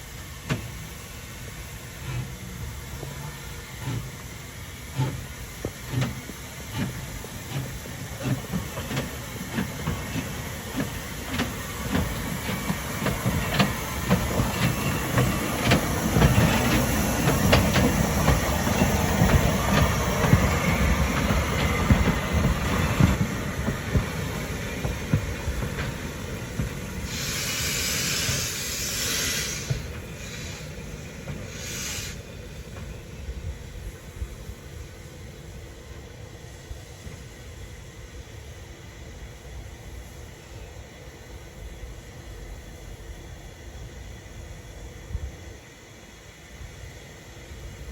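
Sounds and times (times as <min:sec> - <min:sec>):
steam hissing: 0:00.0 - 0:47.9
steam locomotive exhaust beats: 0:00.0 - 0:47.9
wheels clattering over rail joints: 0:05.0 - 0:27.2.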